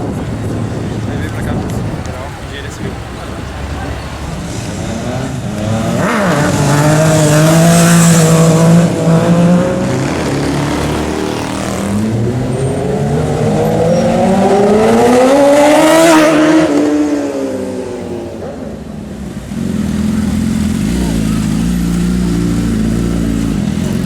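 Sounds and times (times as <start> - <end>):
motorcycle engines revving: 0.0 - 24.0
motorcycle accelerating past: 5.0 - 17.9.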